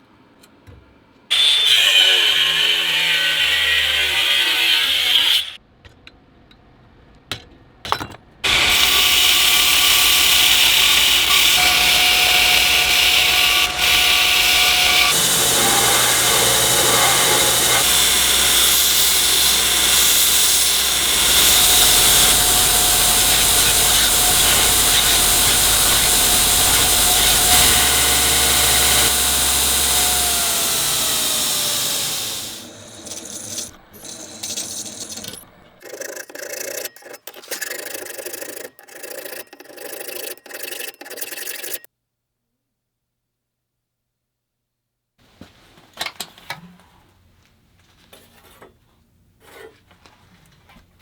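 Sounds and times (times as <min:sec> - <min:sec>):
power tool whining: 0:08.4 - 0:35.8
hand filing strokes: 0:08.5 - 0:35.2.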